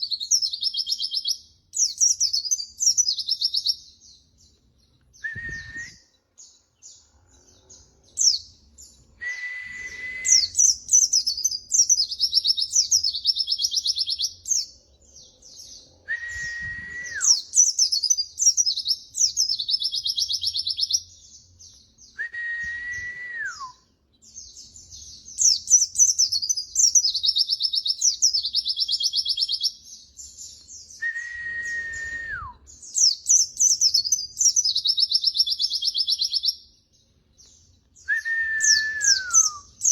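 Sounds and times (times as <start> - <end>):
bird high twittering song: 0.0 - 39.9
lower downward-sliding whistle: 5.2 - 6.1, 9.2 - 10.6, 16.0 - 17.4, 22.2 - 23.8, 31.0 - 32.6, 38.1 - 39.7.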